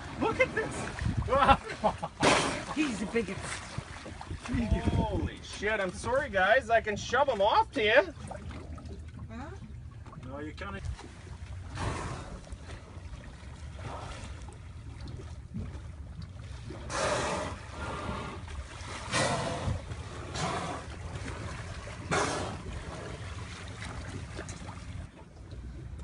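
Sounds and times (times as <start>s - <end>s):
water and wind around boat: 0.0s - 26.0s.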